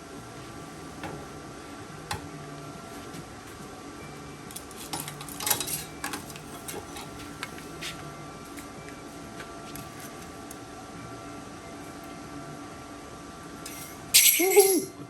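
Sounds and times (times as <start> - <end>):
light metallic clinks: 13.6 - 14.9.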